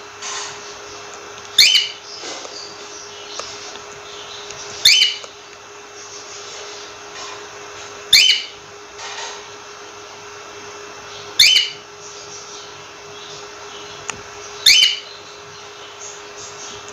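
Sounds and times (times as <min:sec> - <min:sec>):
steady background hum: 0:00.0 - 0:16.9
cockatiel shrill calls: 0:01.6 - 0:02.0, 0:04.8 - 0:05.2, 0:08.1 - 0:08.6, 0:11.4 - 0:11.8, 0:14.6 - 0:15.1.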